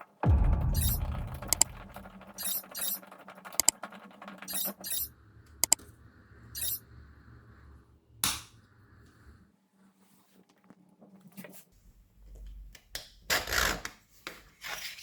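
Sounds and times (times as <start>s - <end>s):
longer louder noise: 0.2s - 3.0s
metallic clicks of small parts: 0.7s - 5.8s, 6.6s - 6.8s.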